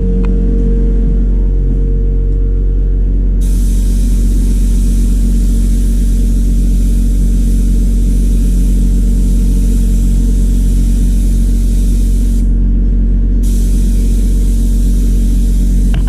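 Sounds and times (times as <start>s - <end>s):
low machine hum: 0.0s - 16.0s
water spraying: 3.4s - 12.5s, 13.4s - 16.0s.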